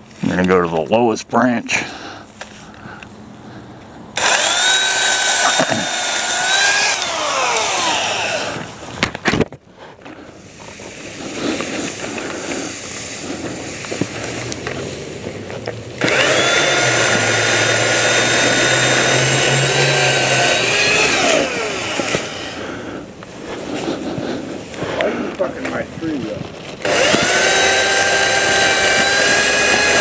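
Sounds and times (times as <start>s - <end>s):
handling noises: 2.3s - 22.5s
chainsaw running: 4.2s - 9.2s, 10.9s - 22.9s, 26.8s - 30.0s.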